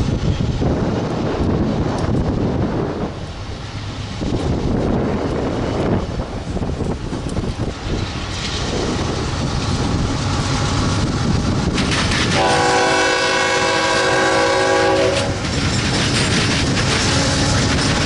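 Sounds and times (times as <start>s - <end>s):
train rumbling and clattering: 0.0s - 18.0s
locomotive horn chord: 12.3s - 15.4s.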